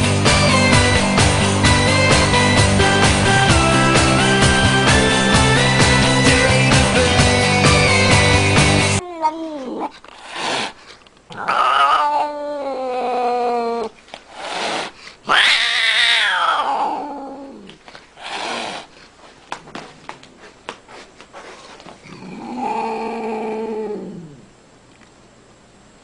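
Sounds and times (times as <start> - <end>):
cat yowling: 11.3 - 13.9, 15.3 - 17.7.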